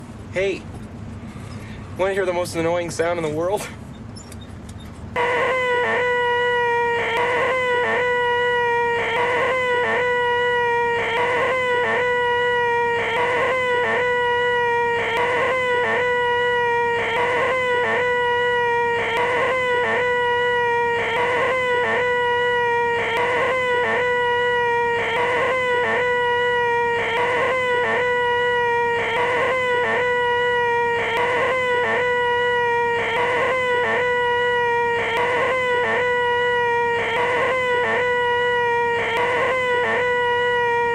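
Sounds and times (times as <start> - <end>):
man making nasal whine: 5.2 - 10.2, 12.9 - 14.3, 17.0 - 18.3, 29.0 - 30.3, 33.0 - 34.3, 37.0 - 38.2.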